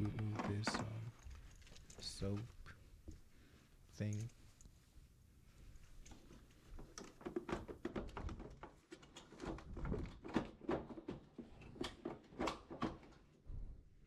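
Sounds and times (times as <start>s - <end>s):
plastic parts knocking and clicking: 0.0s - 1.9s, 6.8s - 13.2s.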